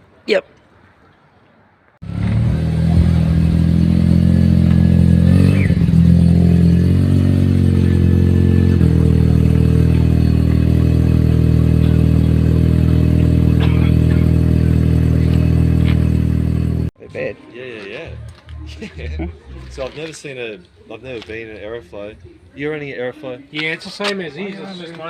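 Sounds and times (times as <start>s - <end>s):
engine revving: 2.0s - 16.9s
rotary engine idling: 2.0s - 16.9s.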